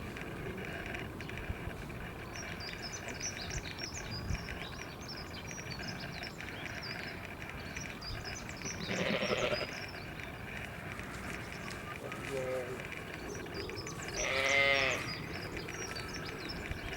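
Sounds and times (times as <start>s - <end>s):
small birds chirping: 0.0s - 16.9s
bleat-like animal call: 8.9s - 9.8s, 14.2s - 15.1s.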